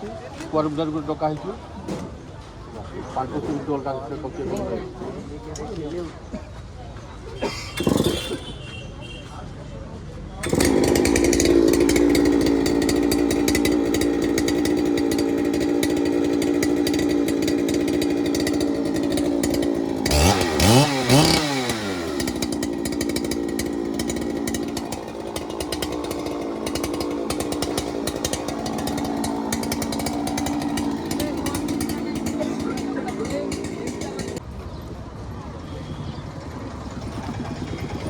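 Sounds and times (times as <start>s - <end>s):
chainsaw revving: 7.6s - 8.7s, 10.4s - 34.4s, 36.9s - 38.0s.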